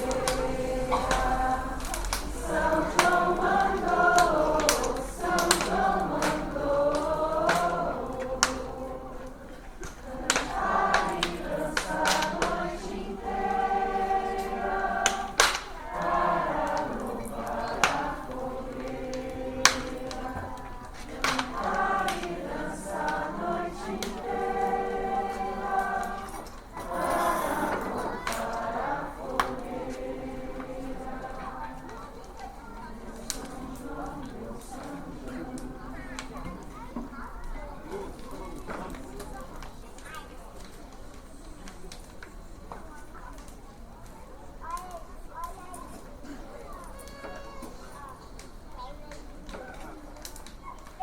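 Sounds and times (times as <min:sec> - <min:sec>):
choir singing: 0:00.0 - 0:37.1.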